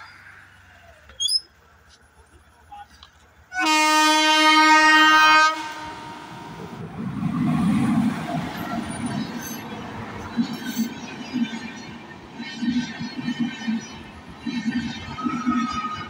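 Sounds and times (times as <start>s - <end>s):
train rumbling past: 0.0s - 16.0s
train horn blast: 3.5s - 6.6s
wheels rattling on rails: 6.6s - 16.0s.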